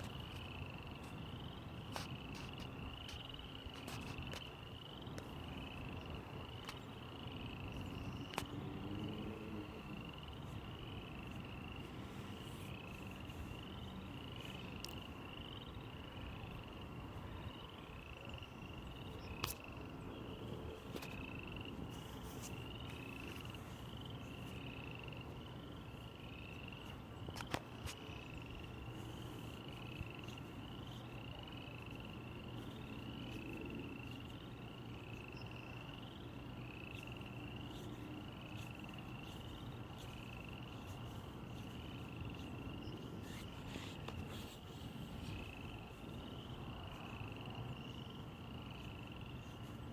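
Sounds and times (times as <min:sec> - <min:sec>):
small animal chirping: 0:36.9 - 0:46.1.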